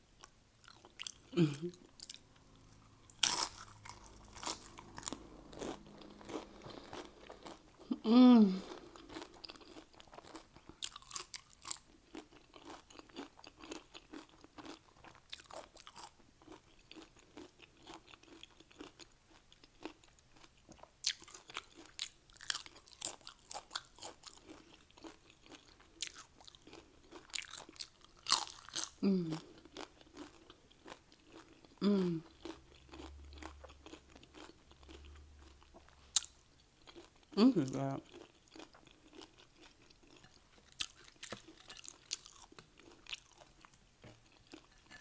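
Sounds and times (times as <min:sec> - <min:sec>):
chips being chewed: 0:00.2 - 0:08.0, 0:08.6 - 0:45.0
person humming: 0:01.3 - 0:01.8, 0:07.9 - 0:08.8, 0:29.0 - 0:29.4, 0:31.8 - 0:32.2.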